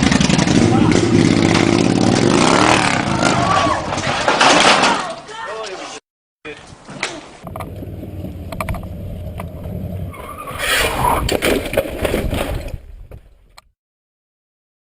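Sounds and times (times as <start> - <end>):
vehicle engine rumbling: 7.4 - 13.6.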